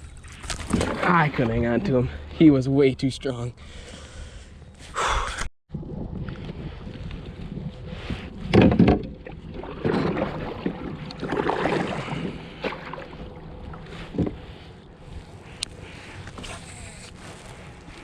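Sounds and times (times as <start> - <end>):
wind on microphone: 5.3 - 16.8.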